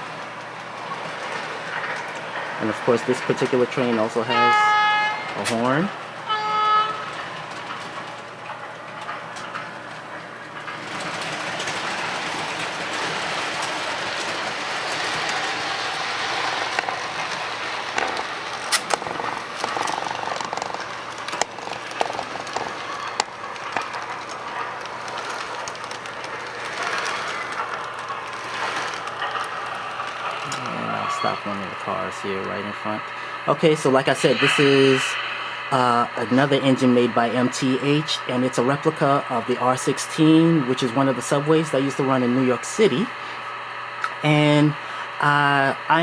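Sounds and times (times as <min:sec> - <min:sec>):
model train rolling: 0:00.0 - 0:46.0
model train horn: 0:04.3 - 0:05.6, 0:06.3 - 0:07.2.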